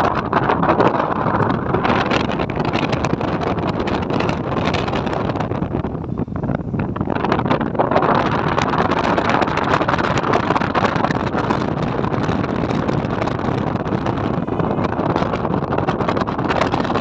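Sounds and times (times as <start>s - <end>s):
moving vehicle running noise: 0.0s - 17.0s
wind rushing on microphone: 0.0s - 17.0s.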